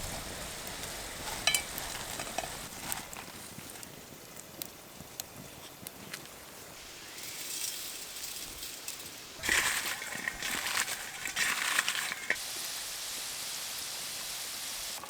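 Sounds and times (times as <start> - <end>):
hot oil hissing in a pan: 0.0 - 3.0, 6.4 - 15.0
loud sizzle of food frying: 0.0 - 15.0.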